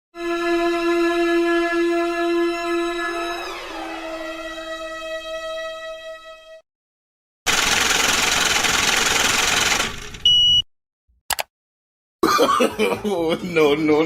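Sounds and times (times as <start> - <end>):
short high-pitched beep: 10.3 - 10.6
single click: 11.3 - 11.5.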